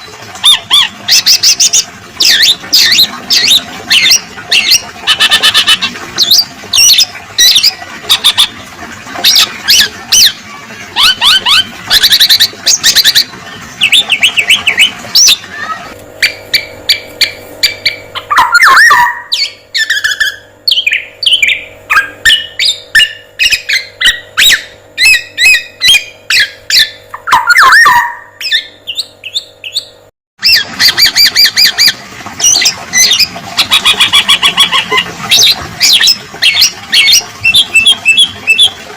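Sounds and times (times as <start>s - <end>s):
steady background hum: 0.0s - 38.9s
songbird chattering and trilling: 16.2s - 31.8s.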